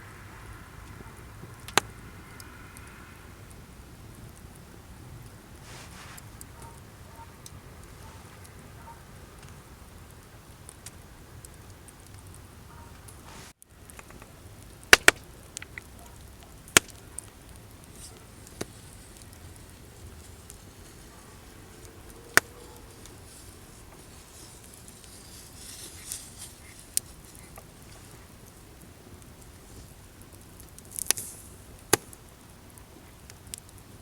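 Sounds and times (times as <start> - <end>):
campfire wood popping: 0.0 - 34.0
faint steady hiss: 0.0 - 34.0.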